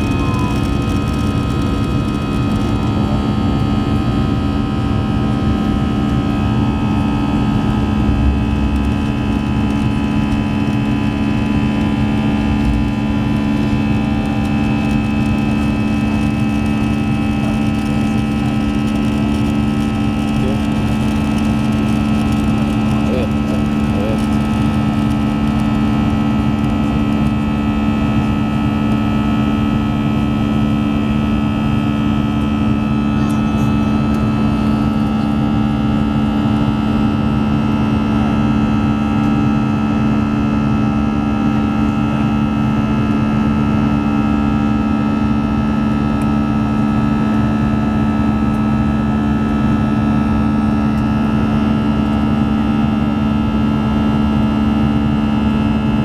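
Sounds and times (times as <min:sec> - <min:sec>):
aircraft cabin engine hum: 0:00.0 - 0:56.0.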